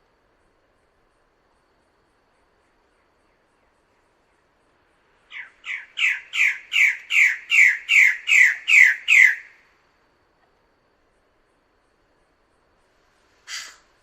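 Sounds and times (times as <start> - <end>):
bird harsh downward calls: 5.3 - 9.6, 13.5 - 13.9.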